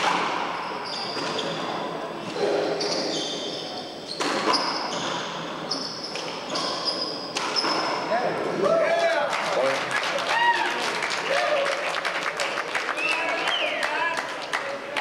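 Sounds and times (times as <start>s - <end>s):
ball bouncing on court: 4.1s - 5.4s, 6.0s - 8.0s.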